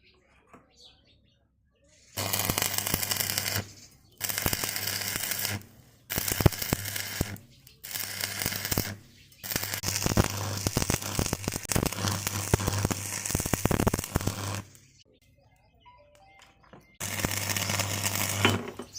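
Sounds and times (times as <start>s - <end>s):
electric arc crackling: 2.2s - 15.0s, 17.0s - 18.9s.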